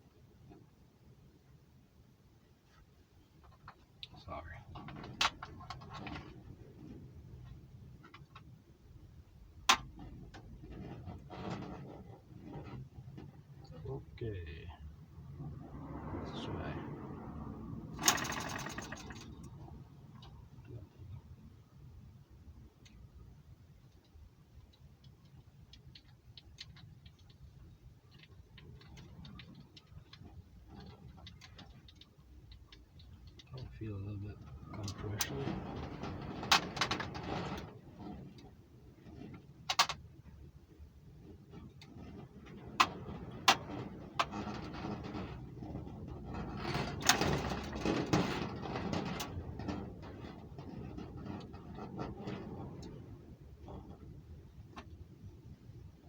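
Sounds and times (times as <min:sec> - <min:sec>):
model engine clicking when turned: 0:18.0 - 0:19.5.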